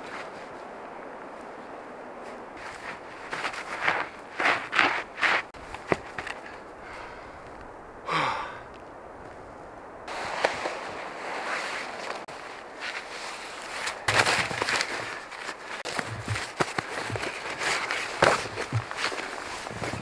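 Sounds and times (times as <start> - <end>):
footsteps crunching through snow: 0.0 - 7.8, 8.7 - 20.0.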